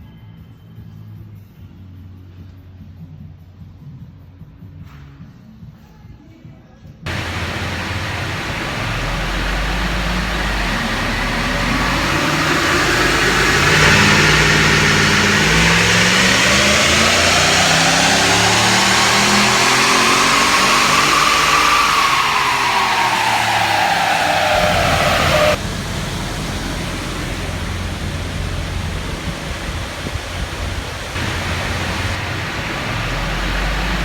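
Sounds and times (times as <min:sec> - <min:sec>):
engine revving under load: 0:07.1 - 0:34.0.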